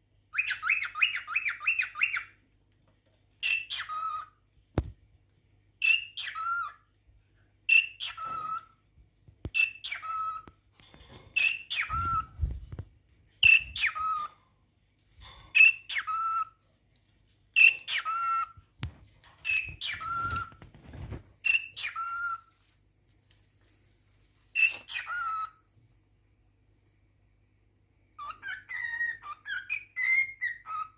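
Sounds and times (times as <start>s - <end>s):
cockatiel call: 24.6s - 25.6s, 28.2s - 30.9s.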